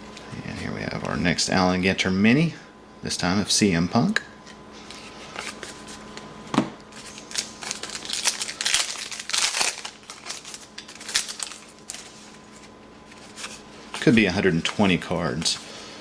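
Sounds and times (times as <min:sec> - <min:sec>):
card pack wrapper crinkling: 0:06.9 - 0:15.7.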